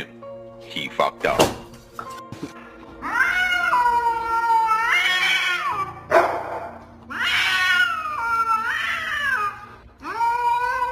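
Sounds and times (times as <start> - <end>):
cat yowling: 3.0 - 6.1, 7.1 - 10.9.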